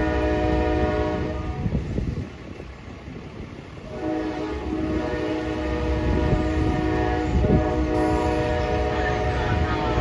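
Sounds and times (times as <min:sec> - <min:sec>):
train horn chord: 0:00.0 - 0:01.8, 0:03.8 - 0:10.0
low train rumble: 0:00.0 - 0:10.0.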